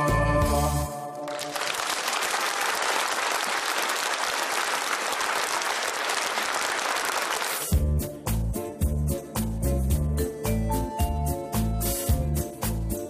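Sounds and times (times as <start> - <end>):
music: 0.0 - 1.6, 7.4 - 13.0
audience applauding: 1.2 - 7.8.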